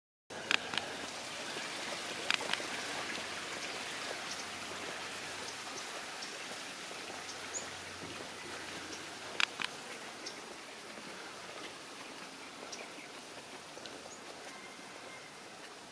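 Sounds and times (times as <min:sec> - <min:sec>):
running water splashing: 0:00.3 - 0:15.9
sharp clicks: 0:02.2 - 0:02.6, 0:09.4 - 0:09.8.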